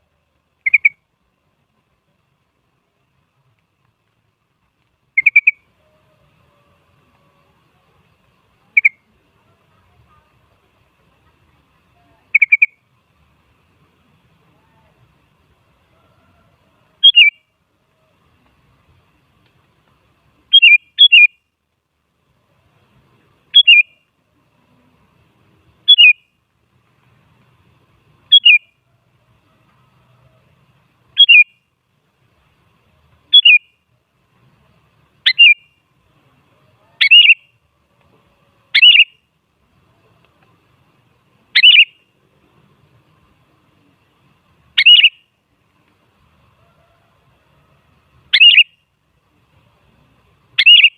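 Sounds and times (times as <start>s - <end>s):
bulbul short sharp calls: 0.6s - 1.0s, 5.1s - 6.4s, 12.0s - 12.9s, 17.0s - 17.5s, 20.5s - 21.4s, 23.5s - 24.0s, 25.8s - 26.4s, 28.3s - 28.8s, 31.2s - 31.6s, 33.3s - 33.8s, 35.2s - 35.8s, 36.8s - 37.6s, 38.7s - 39.2s, 41.6s - 42.1s, 44.7s - 45.3s, 48.3s - 48.8s, 50.5s - 50.9s.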